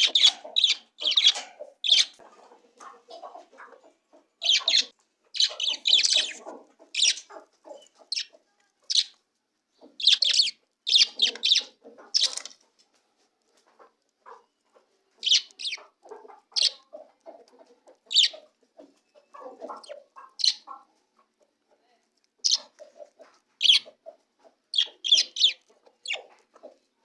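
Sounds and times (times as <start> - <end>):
budgies chirping: 0.0 - 2.2, 4.4 - 8.3, 8.9 - 9.2, 9.8 - 12.6, 15.2 - 17.3, 18.0 - 20.8, 22.4 - 22.8, 23.6 - 24.0, 24.7 - 26.4
soft scratchy bird sounds: 0.0 - 27.0.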